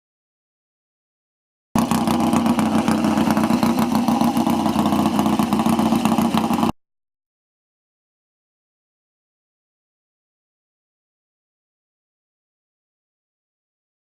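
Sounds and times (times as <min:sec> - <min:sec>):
motorcycle engine idling: 0:01.8 - 0:06.8.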